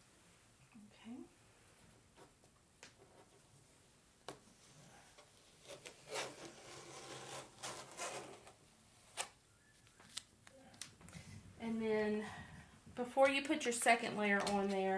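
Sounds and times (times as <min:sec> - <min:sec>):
rubbing and scraping on wood: 0:05.6 - 0:08.5.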